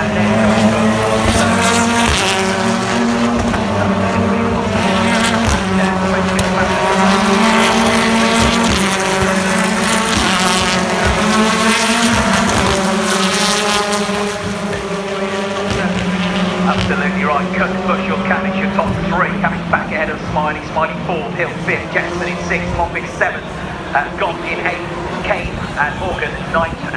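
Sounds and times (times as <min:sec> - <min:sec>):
racing car engines passing: 0:00.0 - 0:26.9.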